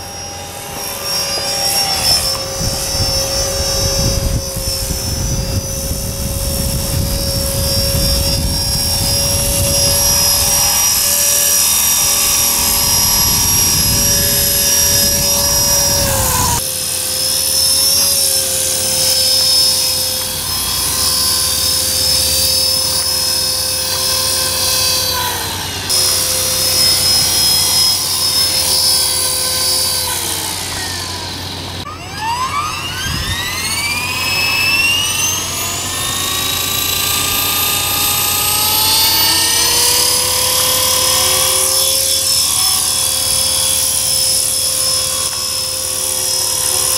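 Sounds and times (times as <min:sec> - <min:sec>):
rc helicopter motor whine: 0:00.0 - 0:46.9
wind buffeting microphone: 0:01.9 - 0:16.6.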